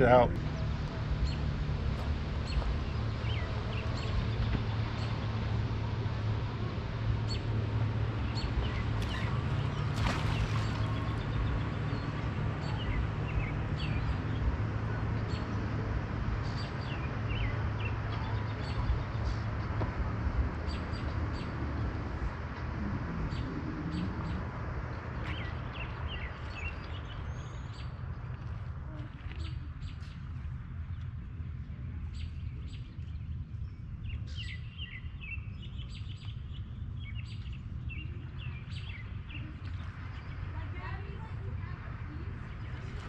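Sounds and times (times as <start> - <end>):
steady low rumble: 0.0 - 43.0
small birds chirping: 7.2 - 15.6, 20.7 - 43.0.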